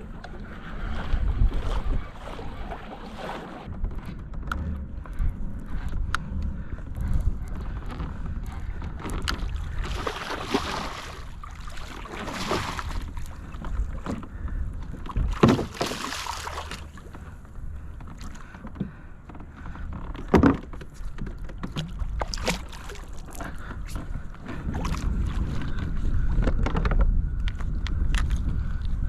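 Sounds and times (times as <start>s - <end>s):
paddle splashing through water: 0.0s - 3.7s, 7.4s - 18.5s, 19.5s - 26.3s
wind rumble on microphone: 0.0s - 29.0s.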